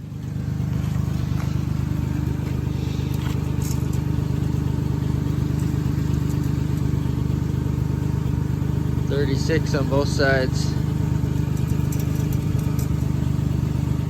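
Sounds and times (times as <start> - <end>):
pickup truck engine idling: 0.0 - 14.0.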